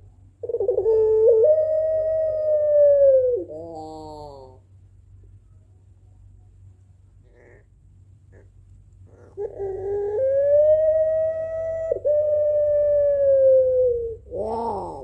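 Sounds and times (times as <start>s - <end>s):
dove cooing: 0.0s - 4.6s, 7.2s - 7.7s, 8.3s - 15.0s.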